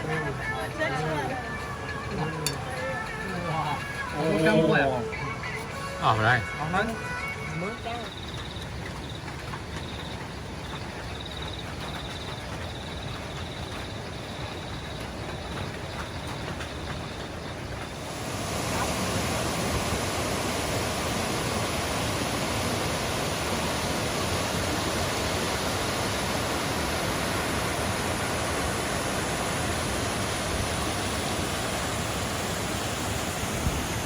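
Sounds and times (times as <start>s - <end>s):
waterfall rushing: 0.0s - 8.0s, 18.0s - 34.0s.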